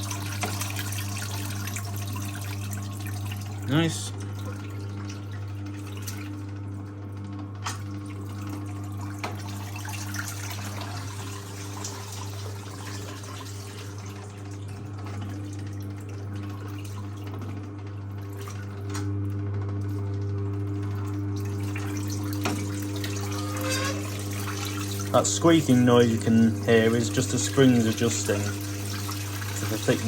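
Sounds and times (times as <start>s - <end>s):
water running and dripping: 0.0s - 19.1s, 19.8s - 30.0s
electric motor humming: 20.0s - 30.0s.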